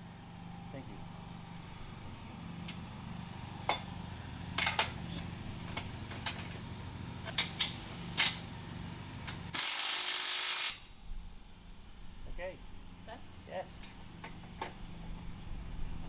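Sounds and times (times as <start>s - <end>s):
metal tools clinking: 4.6s - 6.6s
steady low hum: 10.8s - 16.0s.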